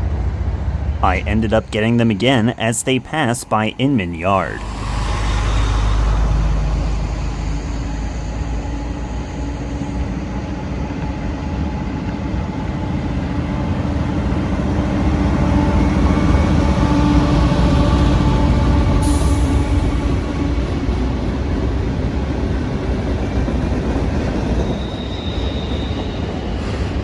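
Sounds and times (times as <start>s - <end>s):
diesel train engine rumble: 2.6s - 25.0s.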